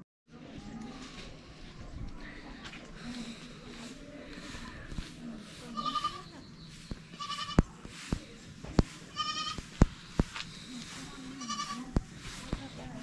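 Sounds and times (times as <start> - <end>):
animal bleating: 5.7 - 6.3, 7.2 - 7.7, 9.1 - 9.6, 11.4 - 11.9.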